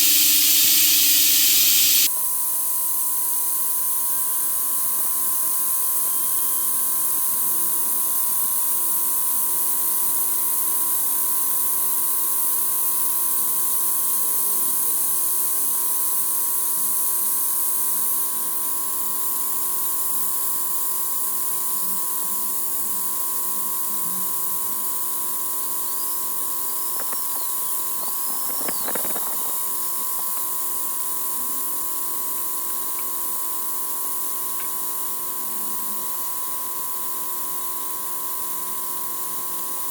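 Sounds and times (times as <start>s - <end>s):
air-powered oil siphon hissing: 0.0s - 2.1s
clatter of clicks: 27.0s - 29.6s.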